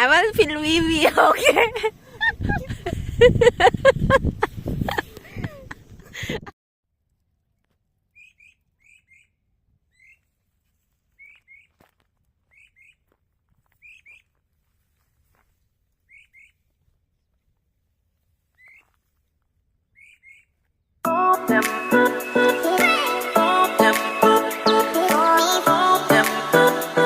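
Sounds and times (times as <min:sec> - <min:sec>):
bird chirping: 0:08.1 - 0:10.3, 0:11.2 - 0:11.7, 0:12.5 - 0:13.1, 0:13.8 - 0:14.3, 0:16.0 - 0:16.6, 0:18.6 - 0:18.9, 0:19.9 - 0:20.6
loud music: 0:21.1 - 0:27.0.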